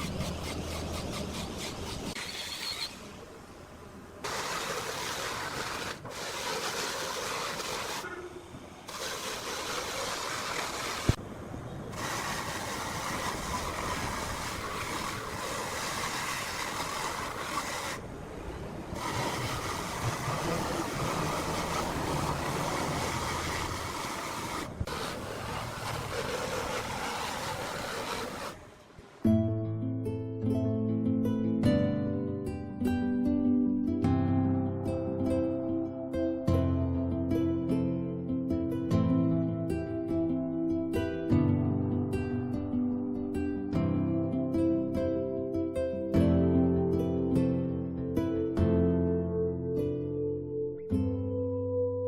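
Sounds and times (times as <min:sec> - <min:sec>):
woodworking machinery running: 0:11.9 - 0:18.0, 0:19.0 - 0:28.7.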